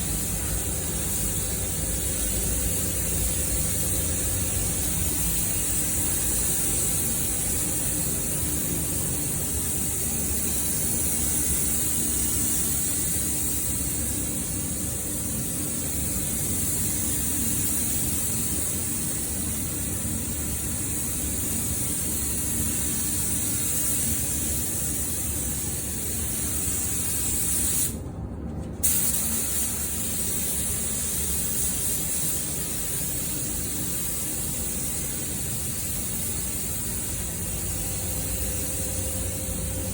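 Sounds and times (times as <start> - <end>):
rushing air hiss: 28.8 - 39.9.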